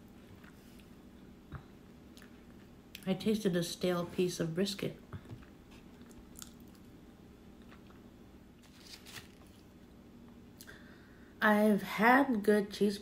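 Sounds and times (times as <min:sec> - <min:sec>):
low room hum: 0:00.0 - 0:13.0
person chewing food: 0:05.2 - 0:08.1.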